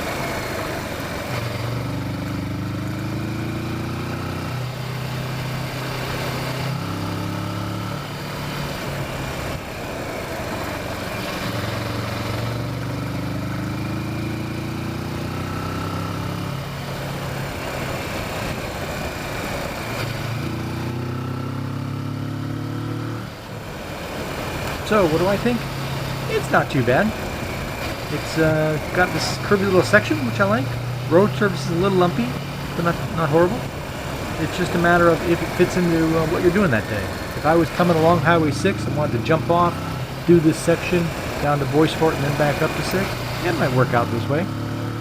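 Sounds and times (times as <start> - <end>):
motorcycle engine revving: 0.0 - 45.0
steady rushing noise: 7.4 - 14.9, 16.0 - 21.4, 23.2 - 45.0.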